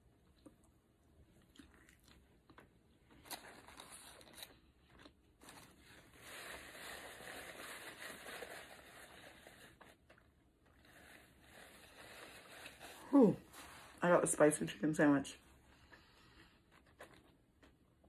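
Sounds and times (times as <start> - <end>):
crunchy chewing: 1.4 - 9.2
paper napkin rustling: 5.4 - 10.1, 10.8 - 14.3.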